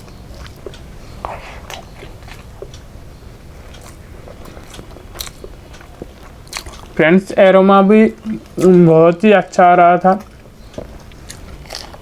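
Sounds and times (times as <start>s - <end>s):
chewing and biting food: 0.0s - 7.0s, 10.2s - 12.0s
low steady hum: 0.0s - 12.0s.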